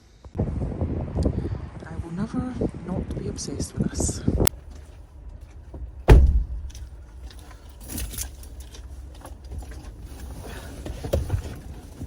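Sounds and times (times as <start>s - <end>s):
light clicks and rattles: 4.5s - 12.0s
heavy thump: 5.7s - 7.0s.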